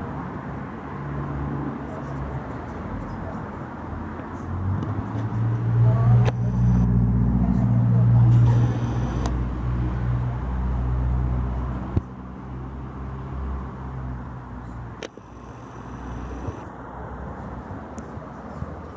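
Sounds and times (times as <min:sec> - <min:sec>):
vehicle engine idling: 0:05.9 - 0:09.4, 0:14.5 - 0:16.7.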